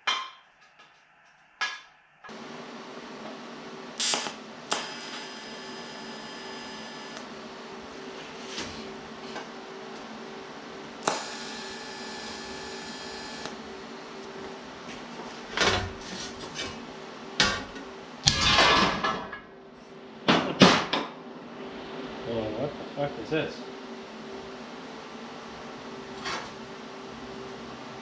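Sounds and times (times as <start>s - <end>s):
steady shop hum: 0.7s - 18.3s.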